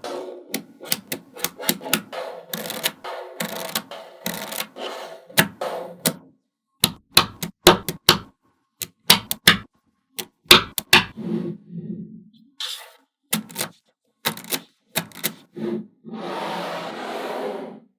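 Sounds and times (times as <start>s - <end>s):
magnetic balls clicking together: 0.6s - 4.8s, 6.8s - 11.1s, 13.3s - 15.4s.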